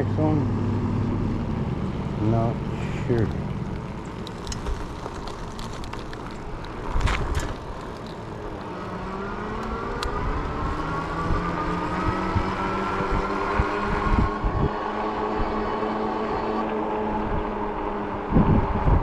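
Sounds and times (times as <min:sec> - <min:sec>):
wind: 0:00.0 - 0:19.0
tyre rumble: 0:02.8 - 0:08.7
electric motor whine: 0:06.4 - 0:19.0.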